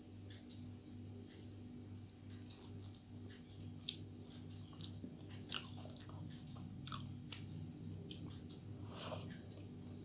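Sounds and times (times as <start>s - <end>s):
steady low hum: 0.0s - 10.0s
person chewing food: 2.3s - 10.0s.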